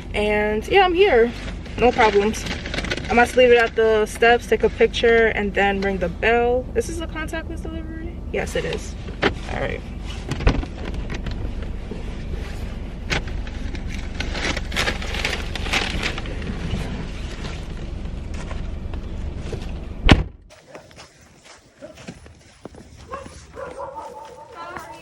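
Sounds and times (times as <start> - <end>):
car engine running: 0.0 - 20.5
clicks and knocks inside car: 10.2 - 12.1, 13.0 - 20.4
car door slamming: 20.0 - 20.4.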